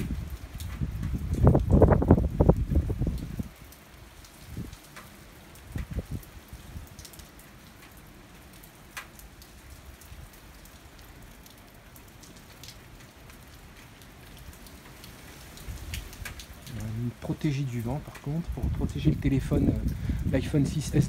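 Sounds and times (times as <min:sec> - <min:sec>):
low thunder rumble: 0:00.0 - 0:03.6
steady rain falling: 0:00.0 - 0:21.0.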